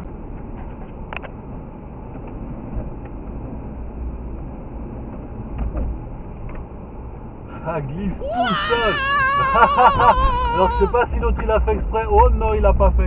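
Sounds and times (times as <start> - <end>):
car tyres and engine rumbling: 0.0 - 8.2.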